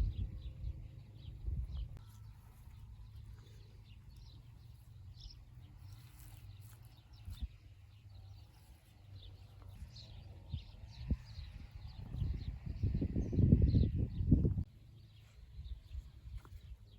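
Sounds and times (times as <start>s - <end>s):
steady low rumble: 0.0s - 6.3s
faint birdsong: 0.0s - 16.9s.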